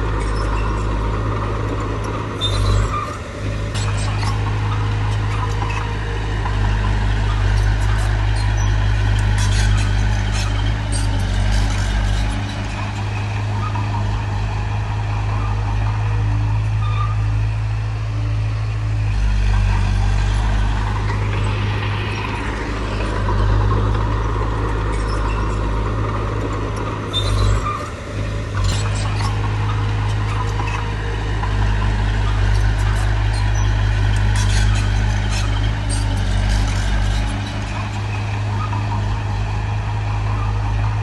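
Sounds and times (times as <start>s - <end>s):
diesel machinery engine drone: 0.0s - 41.0s.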